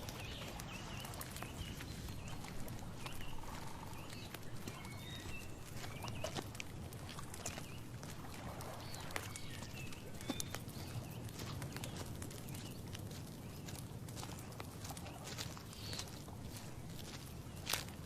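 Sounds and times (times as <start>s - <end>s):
bird chirps: 0.0s - 6.6s, 8.8s - 12.8s
dry clicks and crackles: 0.0s - 18.0s.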